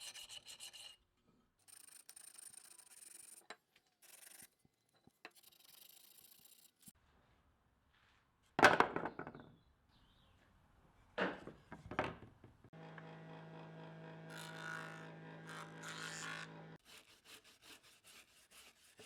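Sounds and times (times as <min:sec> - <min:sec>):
wood and tools knocking: 0:08.6 - 0:09.5, 0:11.2 - 0:13.7
power tool motor running: 0:12.8 - 0:16.8.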